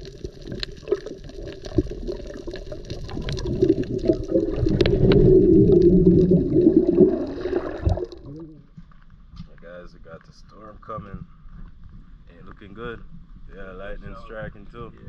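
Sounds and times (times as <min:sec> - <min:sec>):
water gurgling and bubbling: 0:00.0 - 0:08.6.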